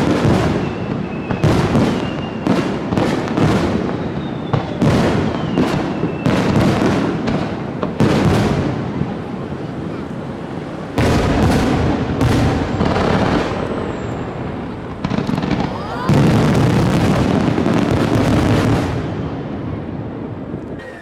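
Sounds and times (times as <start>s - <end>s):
falling firework whistle: 0.0s - 7.0s, 11.0s - 18.7s
fireworks bangs: 0.0s - 21.0s.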